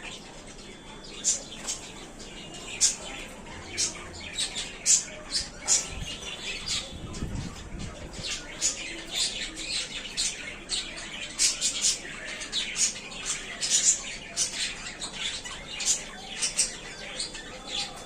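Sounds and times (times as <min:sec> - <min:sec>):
budgerigars chirping and squawking: 0:00.0 - 0:18.0.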